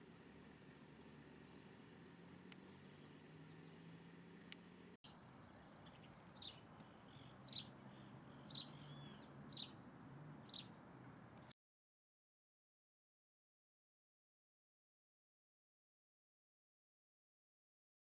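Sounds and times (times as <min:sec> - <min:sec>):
small bird calling: 0:05.1 - 0:09.8, 0:10.4 - 0:10.8.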